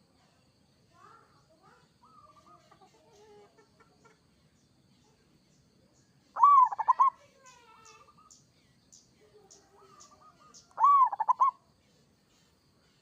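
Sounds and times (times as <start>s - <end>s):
dove cooing: 6.4s - 7.2s, 9.7s - 11.6s
dove calling: 6.4s - 8.4s, 9.5s - 11.6s.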